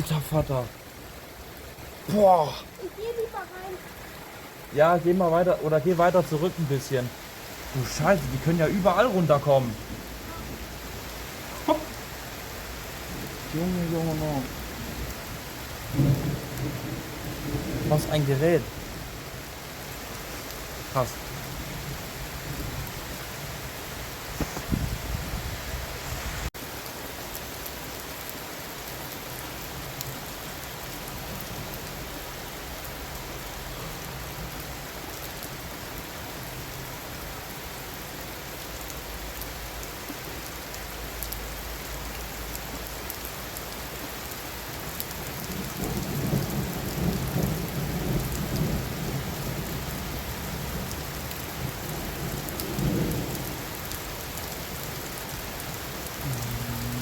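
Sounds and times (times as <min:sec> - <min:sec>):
heavy rain falling: 0:00.0 - 0:57.0
thunder rumbling: 0:15.8 - 0:19.1, 0:56.2 - 0:57.0.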